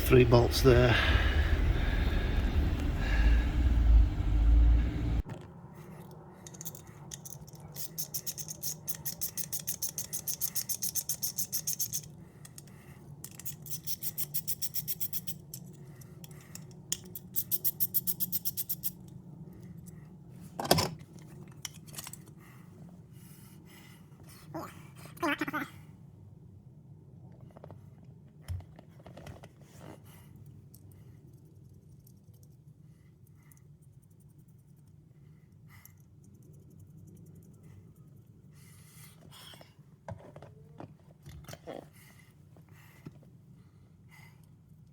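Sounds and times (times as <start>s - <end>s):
ratchet spanner clicking: 6.5s - 12.6s, 13.3s - 15.7s, 16.9s - 19.0s.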